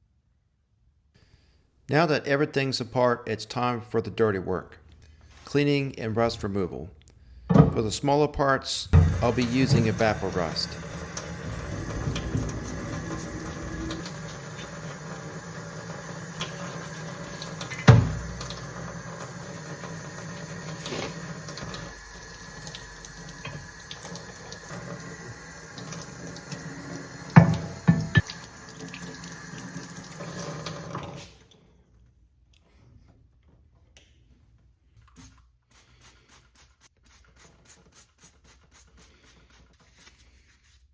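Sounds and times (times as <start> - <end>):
water running from a tap: 9.0 - 31.2
knocks: 27.4 - 28.2.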